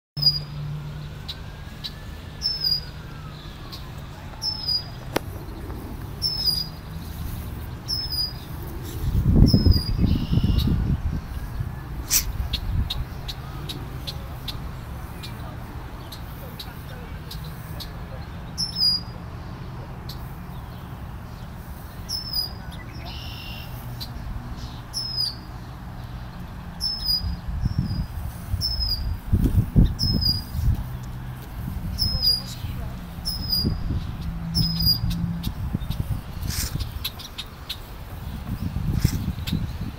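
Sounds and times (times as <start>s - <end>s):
small bird chirping: 0.2s - 0.6s, 1.2s - 7.3s, 7.9s - 10.8s, 22.1s - 31.0s, 31.9s - 39.9s
low rumble on microphone: 2.9s - 16.0s, 26.4s - 37.1s, 38.1s - 39.9s
low rumble: 4.8s - 14.0s.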